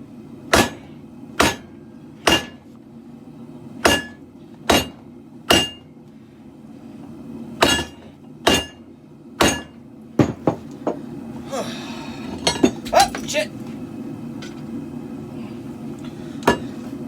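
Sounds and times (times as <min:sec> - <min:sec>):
hammer striking steel on anvil: 0:00.5 - 0:00.8, 0:01.4 - 0:02.6, 0:03.8 - 0:05.8, 0:07.6 - 0:08.8, 0:09.4 - 0:10.4.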